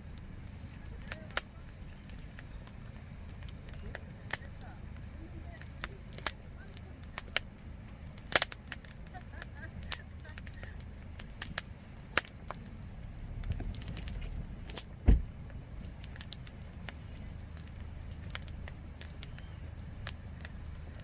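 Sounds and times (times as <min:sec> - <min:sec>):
campfire wood crackling: 0:00.0 - 0:21.0
fire popping: 0:00.0 - 0:21.0
low steady rumble: 0:00.0 - 0:21.0
deep thump: 0:13.5 - 0:15.4.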